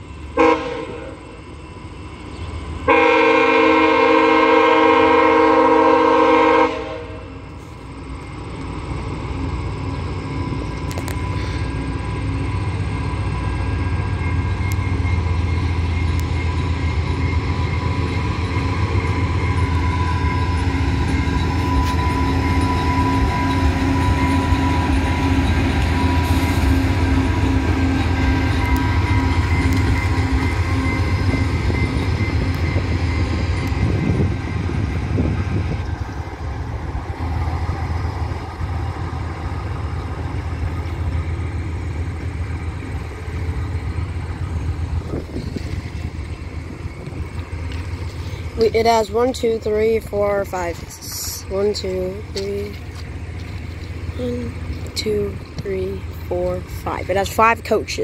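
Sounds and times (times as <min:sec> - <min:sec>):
diesel locomotive engine rumble: 0:00.0 - 0:58.0
train rolling past: 0:00.0 - 0:58.0
train horn blast: 0:00.4 - 0:01.3, 0:02.9 - 0:07.4.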